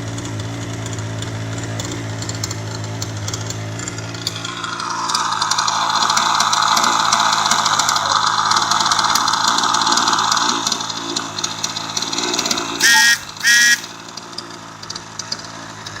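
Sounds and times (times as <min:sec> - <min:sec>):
model engine running: 0:00.0 - 0:16.0
short loud beeps: 0:12.8 - 0:13.9.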